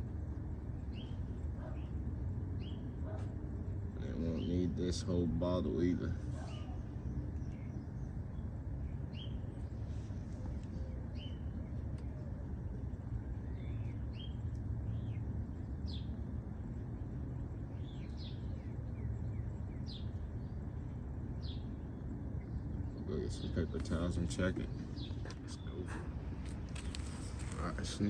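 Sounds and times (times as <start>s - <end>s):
birds chirping: 0.0s - 28.0s
steady low rumble: 0.0s - 28.0s.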